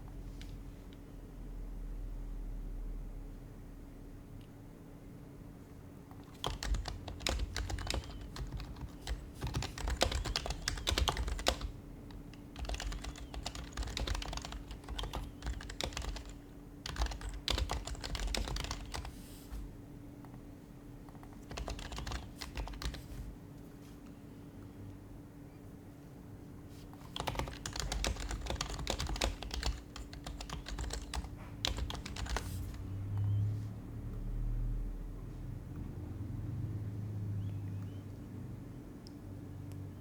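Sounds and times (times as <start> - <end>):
faint steady hum: 0.0 - 40.0
keyboard keys clicking: 6.1 - 19.2, 21.0 - 23.3, 27.0 - 33.4.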